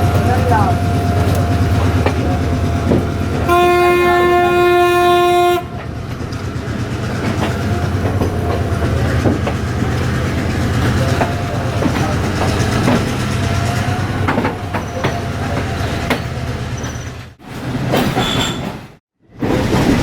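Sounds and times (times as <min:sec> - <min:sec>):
train rumble: 0:00.0 - 0:20.0
locomotive horn: 0:03.4 - 0:05.8.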